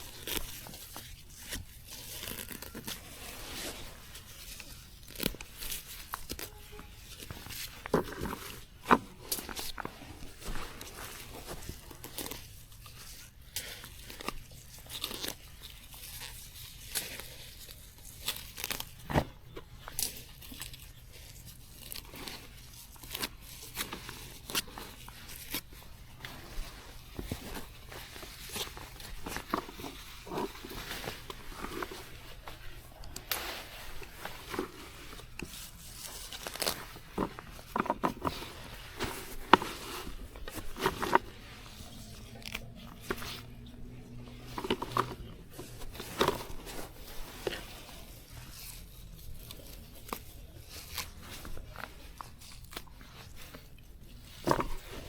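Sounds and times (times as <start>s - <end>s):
plant stems tearing and snapping: 0.0s - 3.2s, 10.8s - 25.7s, 34.5s - 45.3s, 49.4s - 53.6s.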